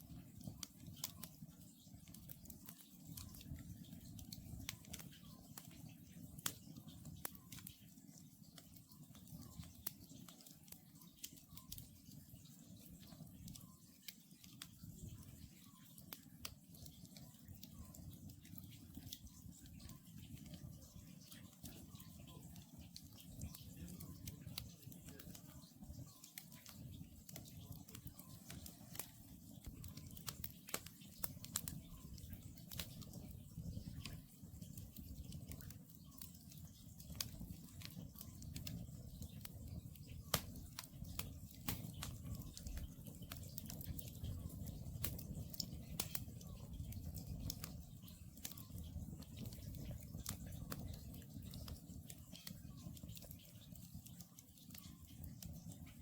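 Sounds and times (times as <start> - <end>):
campfire crackling: 0.0 - 56.0
low rumble of burning logs: 0.0 - 56.0
sharp fire pops: 36.8 - 44.3.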